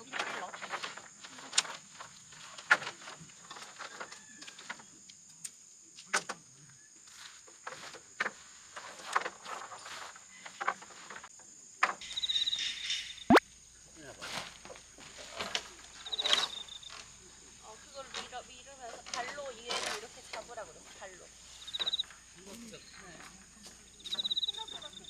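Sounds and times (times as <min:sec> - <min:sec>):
tent poles clicking and knocking: 0:00.0 - 0:06.4, 0:07.1 - 0:12.0, 0:14.2 - 0:25.0.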